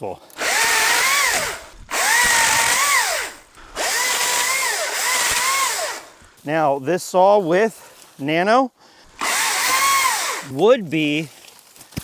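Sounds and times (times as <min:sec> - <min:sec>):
electric chainsaw motor whining: 0:00.4 - 0:06.2, 0:09.1 - 0:10.6.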